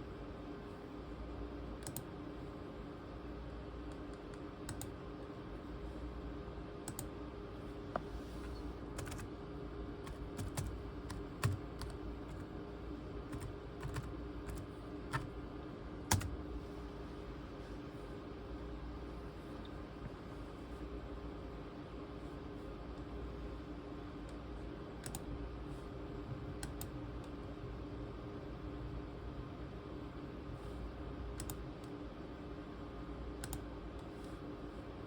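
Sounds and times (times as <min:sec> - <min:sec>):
laptop keys clicking: 0:03.9 - 0:05.0, 0:09.0 - 0:09.3, 0:10.1 - 0:12.5, 0:13.3 - 0:15.3, 0:16.1 - 0:16.4.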